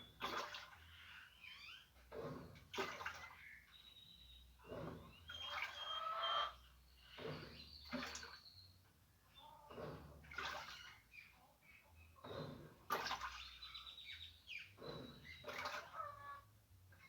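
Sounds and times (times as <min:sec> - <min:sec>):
water sloshing in washing machine: 0:00.0 - 0:17.0.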